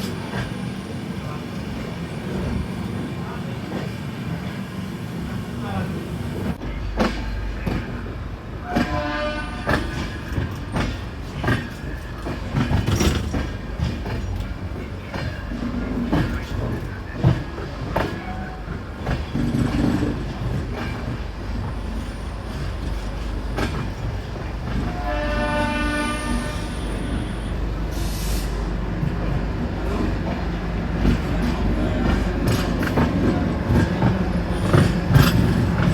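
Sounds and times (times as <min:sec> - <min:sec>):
train rumbling on rails: 0:00.0 - 0:35.9
train horn: 0:08.6 - 0:10.0, 0:24.8 - 0:27.4
wheels clicking over rail joints: 0:08.7 - 0:25.3.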